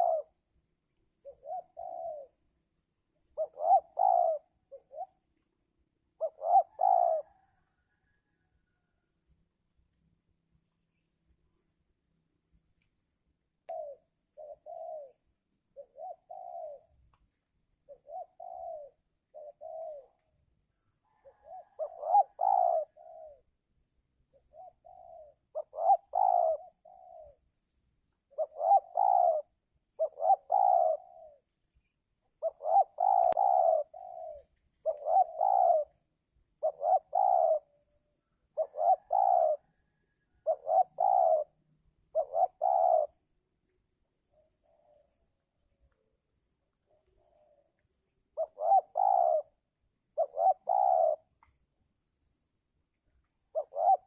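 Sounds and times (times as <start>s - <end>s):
doves cooing: 0.0s - 0.4s, 1.1s - 5.4s, 6.1s - 9.0s, 13.7s - 17.0s, 17.8s - 20.2s, 21.0s - 23.5s, 24.3s - 27.5s, 28.3s - 31.6s, 32.2s - 43.3s, 46.4s - 51.3s, 53.3s - 54.0s
small birds chirping: 0.0s - 5.6s, 8.9s - 54.0s.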